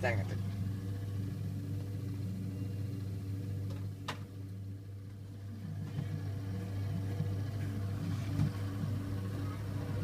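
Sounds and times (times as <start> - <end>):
exhaust fan humming: 0.0 - 10.0.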